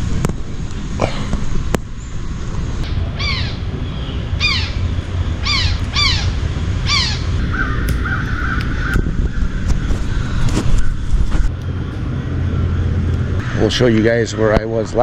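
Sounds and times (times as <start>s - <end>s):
bird cawing harshly: 2.9s - 11.1s, 13.4s - 14.5s.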